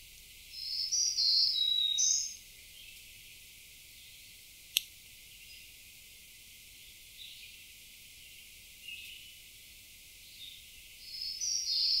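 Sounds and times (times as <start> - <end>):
faint outdoor background: 0.0 - 12.0
songbird singing: 0.0 - 12.0.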